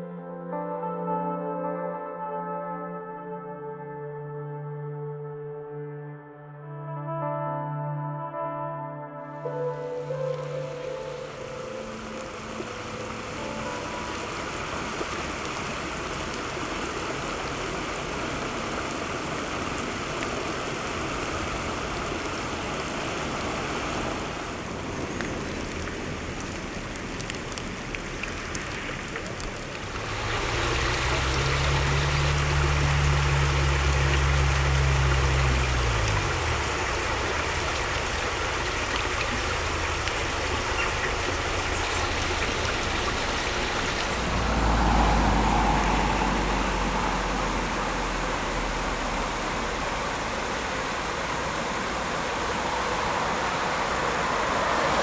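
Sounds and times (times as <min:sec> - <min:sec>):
floodwater rushing: 0:09.4 - 0:55.0
vehicle engine passing: 0:28.2 - 0:55.0.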